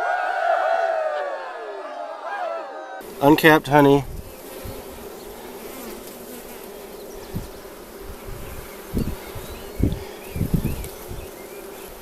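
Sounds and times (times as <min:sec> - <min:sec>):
bees buzzing: 0:03.0 - 0:12.0.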